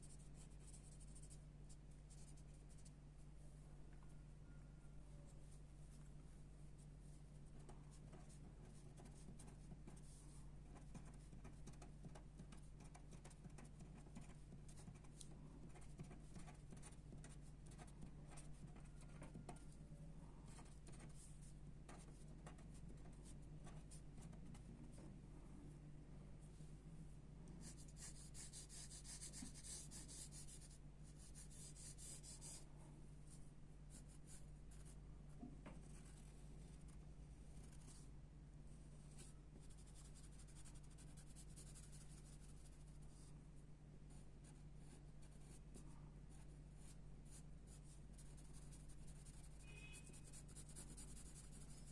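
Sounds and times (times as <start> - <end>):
low electrical hum: 0.0 - 51.9
pencil scratching on paper: 7.6 - 19.7, 27.6 - 32.6, 39.1 - 43.0, 47.8 - 51.9.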